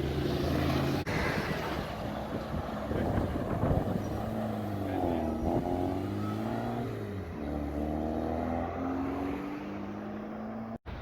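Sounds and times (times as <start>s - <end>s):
car engine accelerating: 3.0s - 10.8s.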